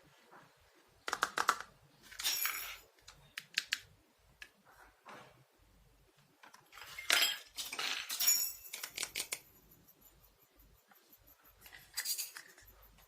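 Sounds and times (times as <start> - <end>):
toy kitchen pieces clinking: 2.1 - 2.9, 6.7 - 9.5, 11.6 - 13.0
high ringing: 8.2 - 11.9.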